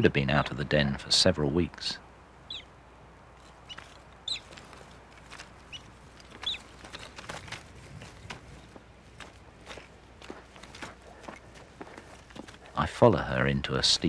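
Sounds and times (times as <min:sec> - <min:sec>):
bird giving sharp calls: 0:02.4 - 0:02.7, 0:03.5 - 0:04.8, 0:05.6 - 0:07.4
soft footsteps: 0:03.4 - 0:12.9.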